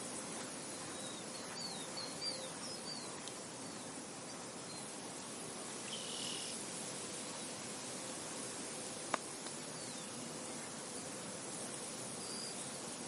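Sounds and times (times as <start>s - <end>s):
soft wind over a field: 0.0s - 13.0s
small birds chirping: 0.4s - 6.6s, 9.4s - 10.8s, 12.1s - 12.8s.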